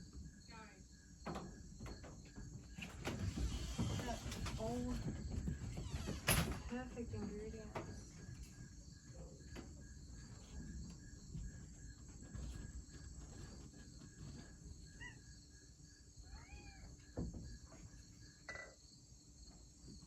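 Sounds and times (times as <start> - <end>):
crickets and night insects: 0.0 - 20.0.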